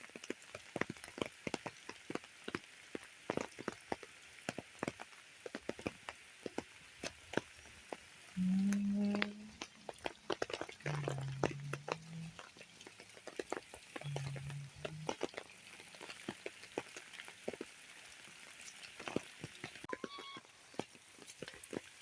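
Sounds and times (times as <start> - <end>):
rain dripping on surfaces: 0.0 - 22.0
low steady-pitched tone: 8.4 - 9.6, 10.8 - 12.5, 14.0 - 15.3.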